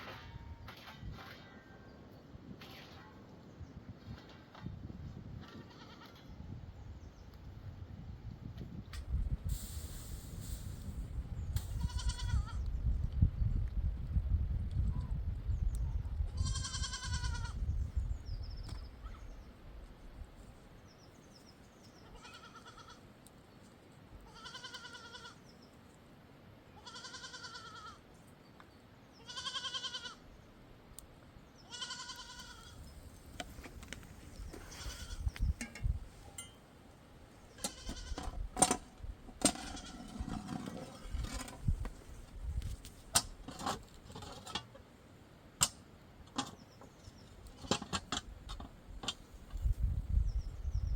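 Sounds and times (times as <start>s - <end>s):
sheep bleating: 26.8s - 28.0s, 29.2s - 30.2s, 31.7s - 32.8s.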